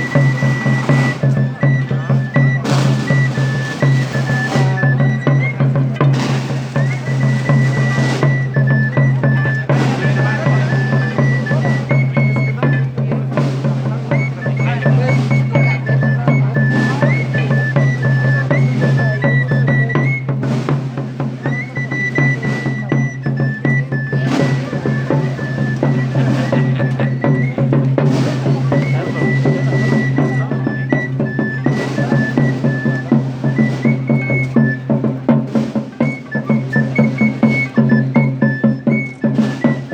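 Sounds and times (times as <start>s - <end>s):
high piping melody: 0.0s - 23.4s
drum beats: 0.0s - 39.9s.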